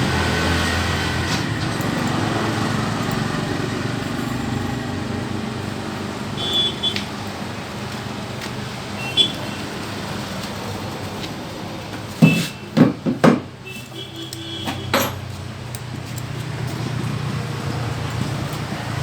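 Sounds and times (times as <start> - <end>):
tools knocking and clattering: 12.2 - 13.6, 14.6 - 15.4.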